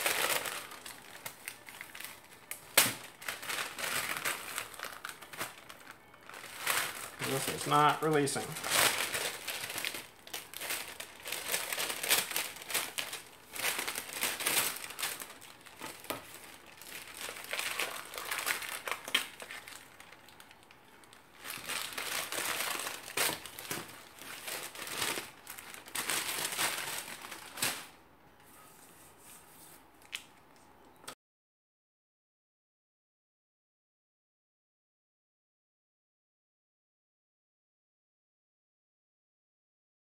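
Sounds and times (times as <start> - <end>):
wax paper crinkling and tearing: 0.0 - 28.0.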